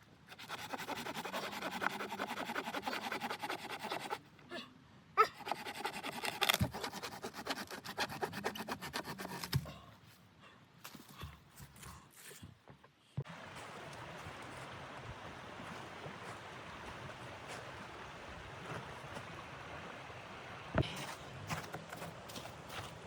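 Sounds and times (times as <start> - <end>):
rasping strokes on wood: 0.3 - 4.2, 5.4 - 9.6.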